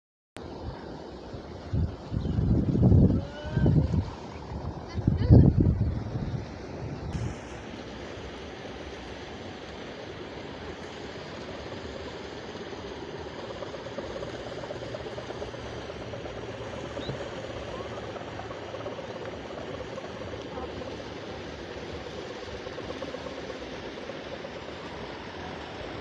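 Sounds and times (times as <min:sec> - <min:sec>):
kite hummer droning in wind: 0:00.4 - 0:26.0.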